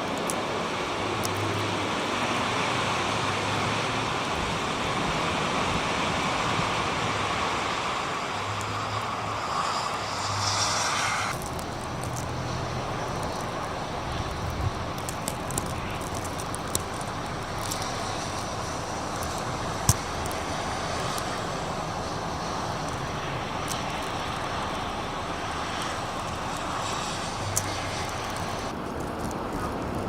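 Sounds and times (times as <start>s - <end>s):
strong storm wind blowing: 0.0s - 30.0s
sharp ticks: 10.3s - 30.0s.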